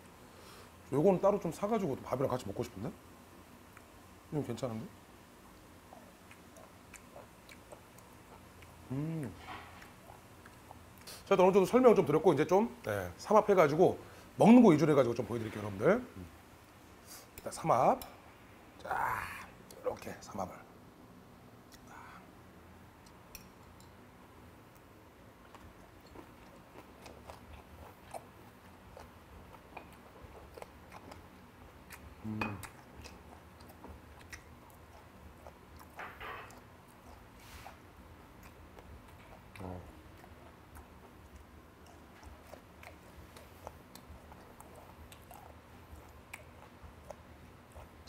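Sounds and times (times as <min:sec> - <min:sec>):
man chewing food: 0:05.4 - 0:11.3, 0:21.4 - 0:48.0
mouth sounds: 0:08.8 - 0:09.6, 0:18.8 - 0:20.1, 0:32.1 - 0:32.8.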